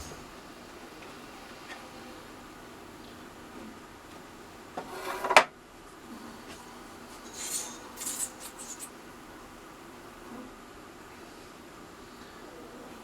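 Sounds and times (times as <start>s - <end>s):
wood parts scraping and sliding: 7.1s - 9.0s.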